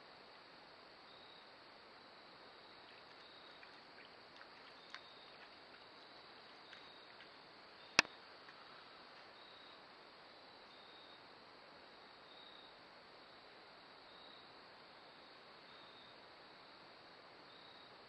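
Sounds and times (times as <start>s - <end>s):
high insect chirps: 2.1s - 11.2s, 17.5s - 18.0s
light ticks: 2.9s - 7.4s.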